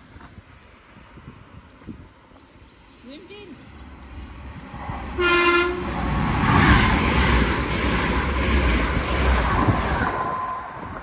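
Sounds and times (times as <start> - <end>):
rush of passing train carriages: 3.5 - 11.0
train horn blast: 5.2 - 5.9.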